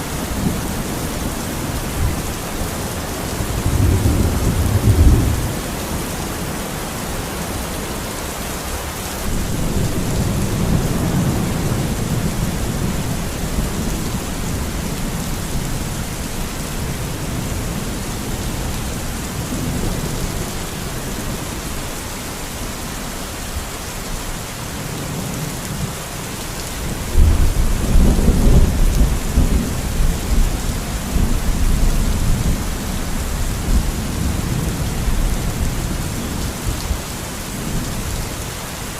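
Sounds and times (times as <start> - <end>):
steady rain: 0.0 - 38.9
rolling thunder: 0.3 - 6.1, 9.3 - 18.4, 27.1 - 37.0.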